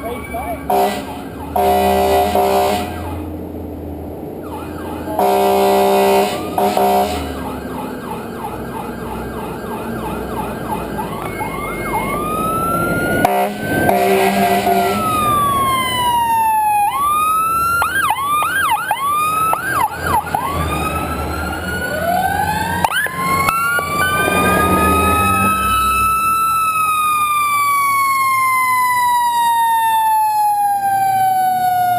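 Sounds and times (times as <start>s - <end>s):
fire engine sirens wailing: 0.0s - 31.9s
air horn blasts: 0.7s - 3.2s, 5.1s - 7.4s, 13.2s - 15.3s.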